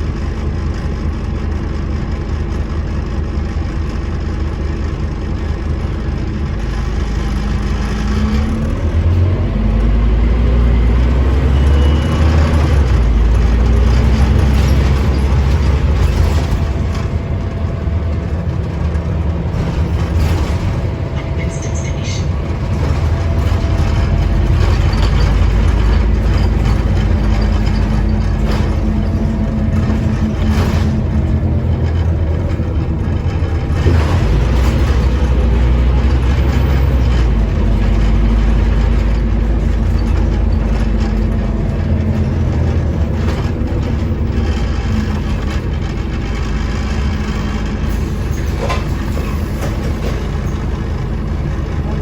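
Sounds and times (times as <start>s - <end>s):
bus engine drone: 0.0s - 52.0s
knocks and rattles: 2.4s - 52.0s.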